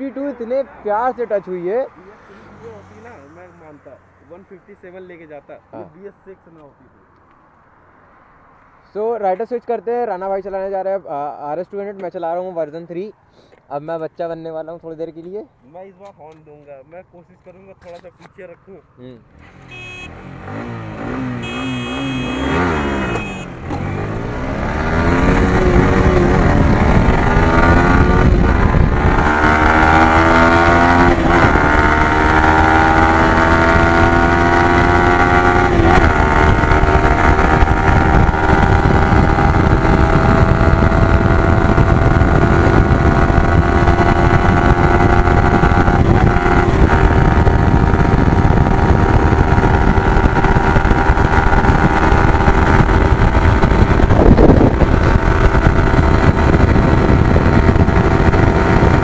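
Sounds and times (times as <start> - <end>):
motorcycle engine accelerating: 19.3 - 59.0
wind rush: 24.4 - 33.9, 35.6 - 59.0.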